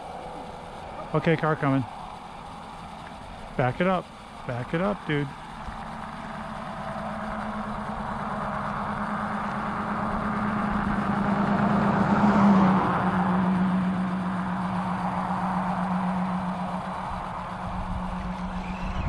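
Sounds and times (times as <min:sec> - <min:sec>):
car driving past: 0:05.8 - 0:19.0.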